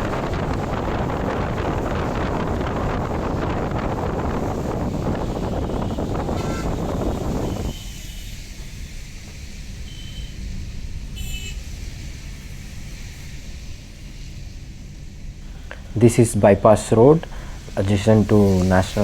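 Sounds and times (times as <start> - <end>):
wind buffeting microphone: 0.0 - 9.8
low traffic rumble: 0.0 - 19.0
car horn toots: 5.2 - 8.5, 9.8 - 10.4, 11.1 - 11.7.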